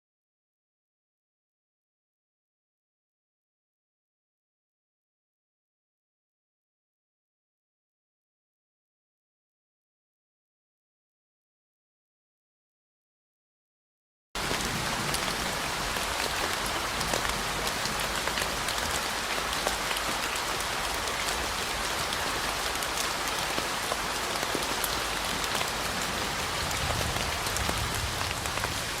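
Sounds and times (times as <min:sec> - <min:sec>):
steady rain hiss: 0:14.4 - 0:29.0.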